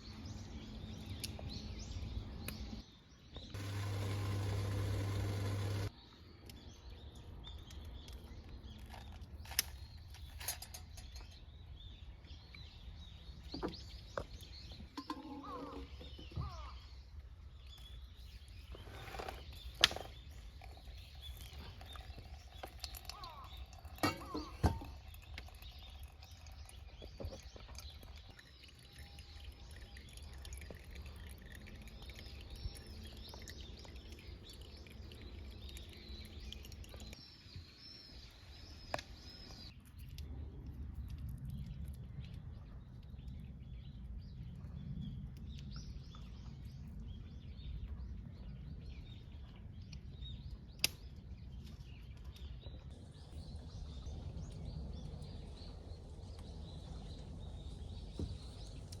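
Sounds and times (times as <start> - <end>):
small birds chirping: 0.0 - 59.0
low steady rumble: 52.8 - 59.0.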